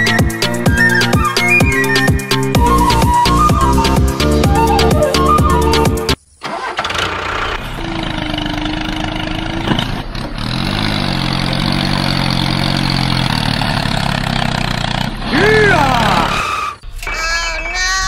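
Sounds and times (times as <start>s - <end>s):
engine starting and running: 6.2s - 17.4s.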